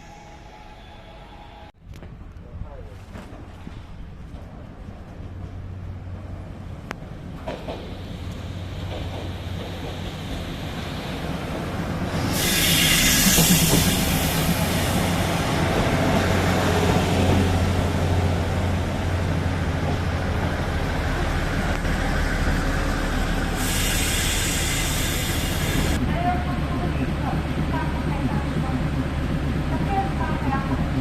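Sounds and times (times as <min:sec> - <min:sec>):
train rumbling on rails: 0:00.0 - 0:31.0
loud hiss: 0:12.1 - 0:15.3, 0:23.4 - 0:26.0.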